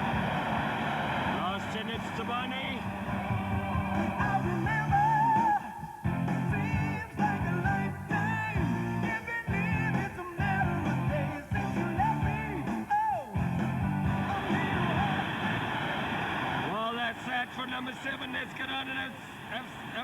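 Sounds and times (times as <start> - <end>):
rock music with singing and guitar: 1.2 - 16.1.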